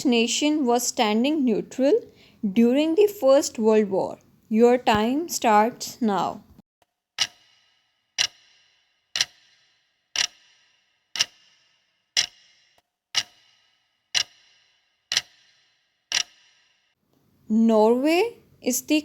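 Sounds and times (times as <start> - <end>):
clock ticking: 7.2 - 16.7.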